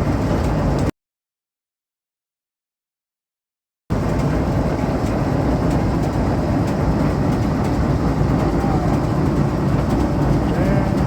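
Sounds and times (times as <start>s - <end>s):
sewing machine clatter and rumble: 3.9s - 11.0s.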